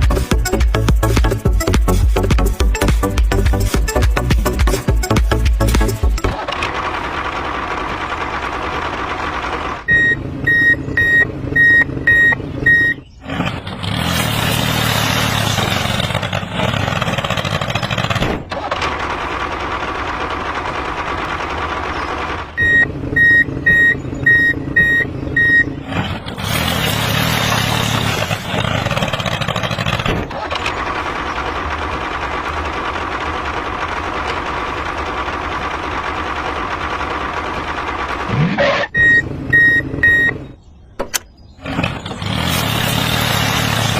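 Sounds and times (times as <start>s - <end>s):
reversing alarm beeping: 9.9s - 13.0s, 22.6s - 25.8s, 38.9s - 40.5s.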